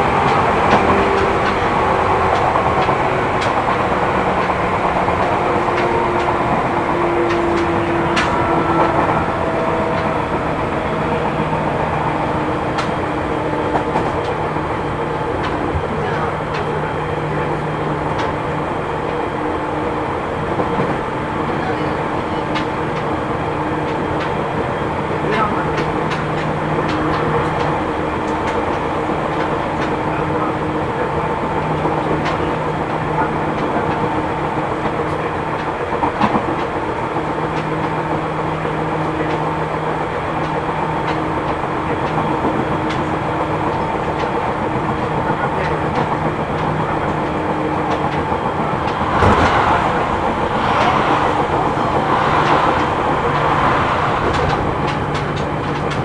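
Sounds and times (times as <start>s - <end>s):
wheel clicks over rail joints: 0.0s - 18.4s, 31.6s - 56.0s
train running gear drone: 0.0s - 56.0s
rushing noise: 46.5s - 56.0s
sharp bang: 49.1s - 51.2s.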